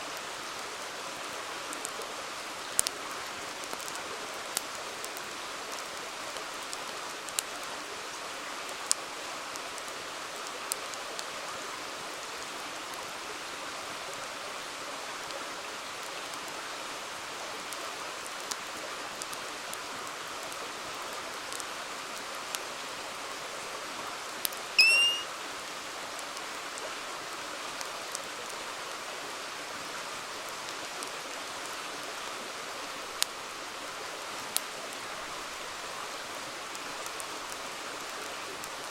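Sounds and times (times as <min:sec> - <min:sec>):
campfire crackling: 0:02.6 - 0:07.7, 0:17.7 - 0:23.2, 0:30.3 - 0:38.9
short high chirp: 0:24.8 - 0:25.3.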